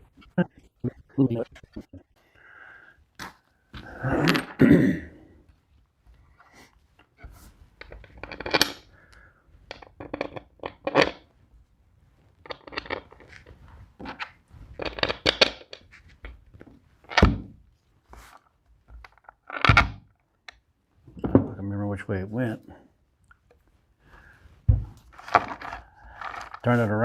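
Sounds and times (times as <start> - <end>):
tools knocking and clattering: 9.7 - 11.2
heavy thuds: 24.6 - 25.0.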